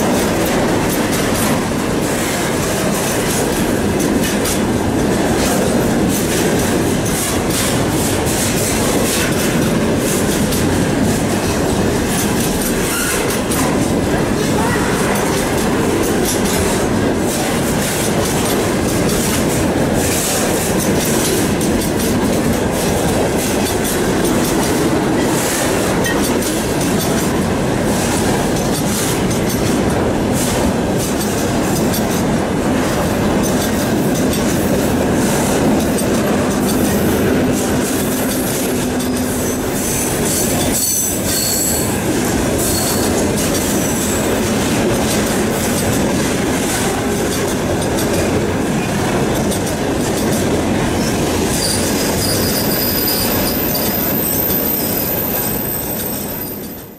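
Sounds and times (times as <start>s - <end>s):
clicking over rail joints: 0.0s - 52.4s
train wheels rumbling on rails: 0.0s - 56.9s
high-pitched train squealing: 12.2s - 16.6s, 35.2s - 44.4s, 50.9s - 56.9s.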